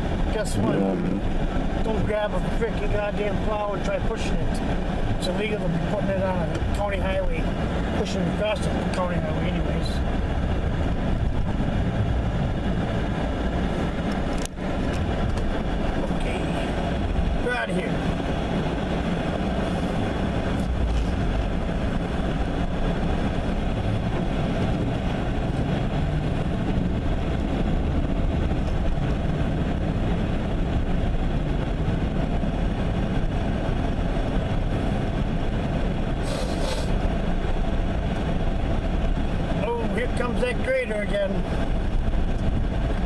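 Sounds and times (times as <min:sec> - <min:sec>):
truck engine and road noise: 0:00.0 - 0:43.0
brief hissing burst: 0:36.2 - 0:36.9.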